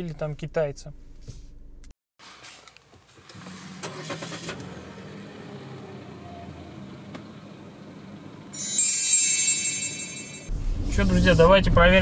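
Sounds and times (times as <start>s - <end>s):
car engine cranking: 3.2s - 8.5s
car engine idling: 3.5s - 8.6s.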